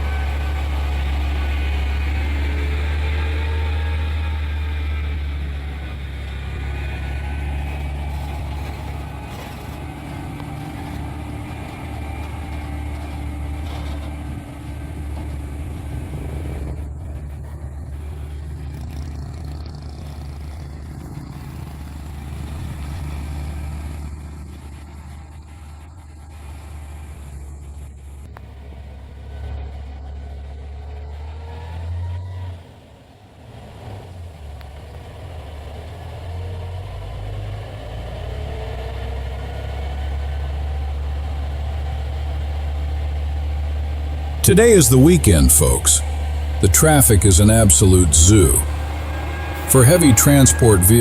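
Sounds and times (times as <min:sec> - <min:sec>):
truck diesel engine pulling uphill: 0:00.0 - 0:51.0.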